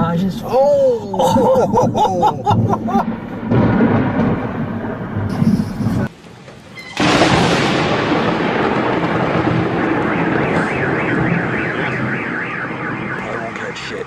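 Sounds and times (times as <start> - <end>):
thunder rumbling: 1.2 - 14.0
warbling car alarm: 6.7 - 7.6, 8.5 - 14.0.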